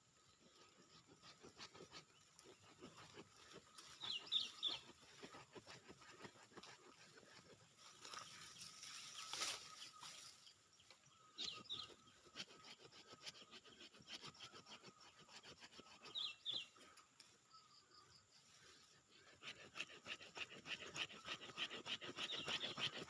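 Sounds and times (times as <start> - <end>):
bird chirping: 0.0 - 23.0
hand tool scraping soil: 0.5 - 10.0, 18.6 - 23.0.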